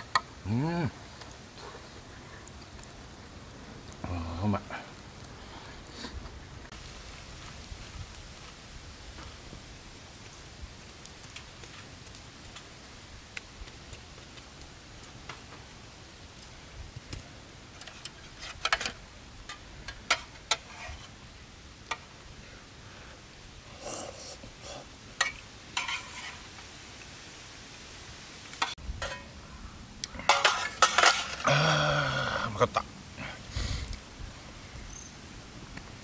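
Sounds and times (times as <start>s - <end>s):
campfire crackling: 0.0s - 36.0s
scraping in metal mess tin: 23.8s - 26.4s, 30.2s - 31.5s.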